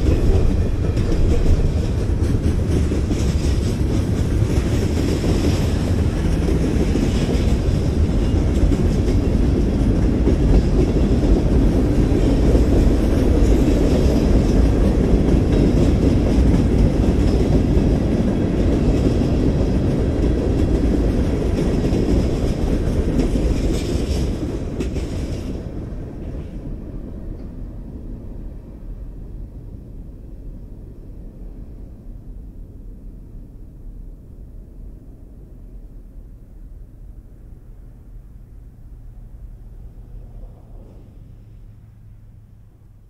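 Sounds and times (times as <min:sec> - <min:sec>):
freight train wheels rumbling: 0:00.0 - 0:43.0.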